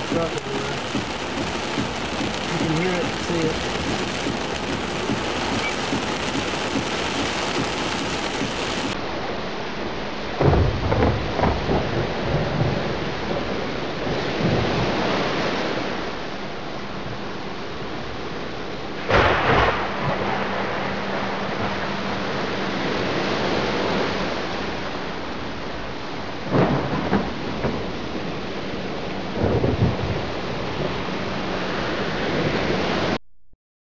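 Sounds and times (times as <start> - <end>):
hail and rain pelting truck: 0.0 - 9.0, 19.0 - 24.0
rain and hail drumming on metal: 0.0 - 9.0, 10.4 - 15.5, 19.0 - 22.5, 26.4 - 32.4
thunder rumble: 0.0 - 9.0, 10.3 - 16.1, 19.0 - 33.2
sudden loud burst: 19.1 - 21.8.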